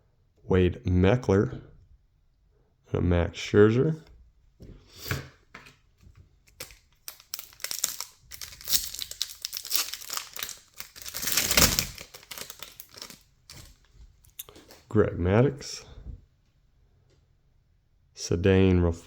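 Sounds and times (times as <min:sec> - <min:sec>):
foil wrapper crinkling: 0:06.5 - 0:14.8.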